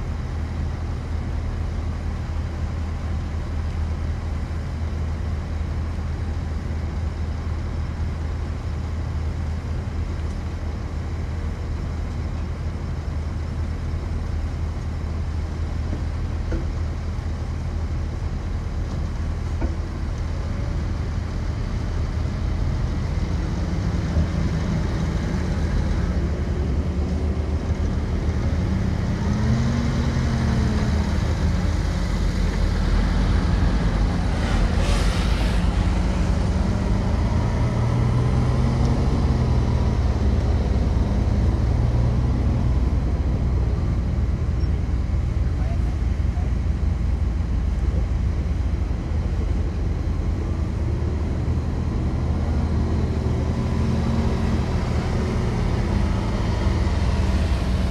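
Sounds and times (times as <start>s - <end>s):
heavy machinery diesel engine: 0.0s - 57.9s
brief high hiss: 34.3s - 36.3s.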